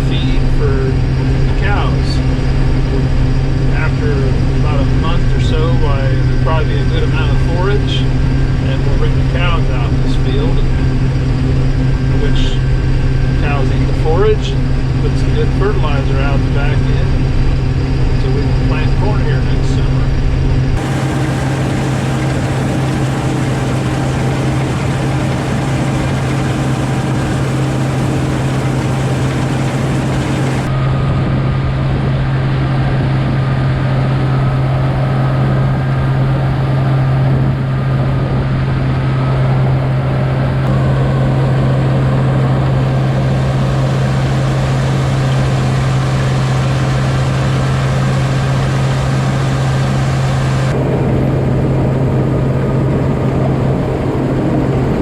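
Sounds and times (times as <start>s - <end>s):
combine harvester engine hum: 0.0s - 31.1s, 31.7s - 55.0s.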